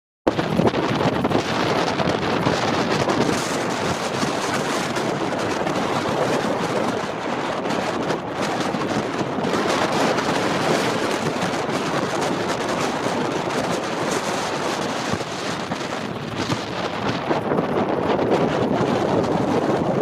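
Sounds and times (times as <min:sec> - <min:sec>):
wind rushing over microphone: 0:00.3 - 0:20.0.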